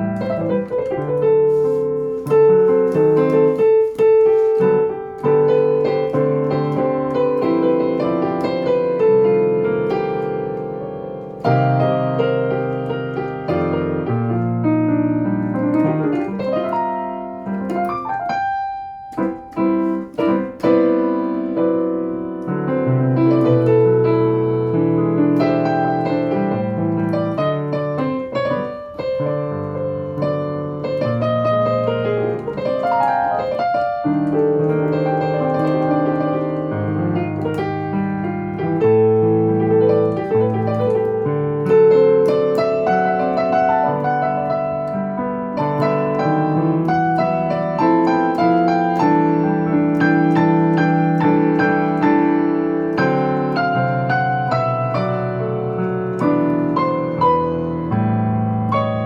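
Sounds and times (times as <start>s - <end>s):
solo jazz piano: 0.0s - 59.0s.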